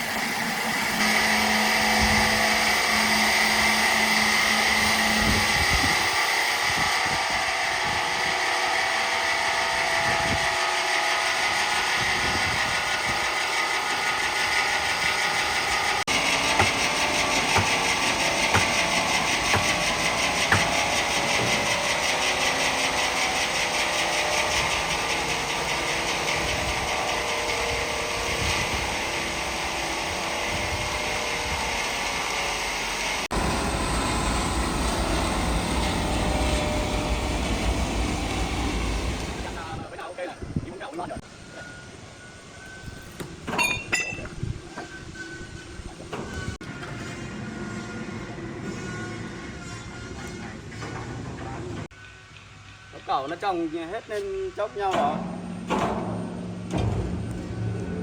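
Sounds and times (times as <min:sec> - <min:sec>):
heavy machinery engine running: 0:00.0 - 0:08.7, 0:13.8 - 0:39.8, 0:54.9 - 0:58.0
low hum: 0:32.8 - 0:39.8, 0:54.9 - 0:58.0.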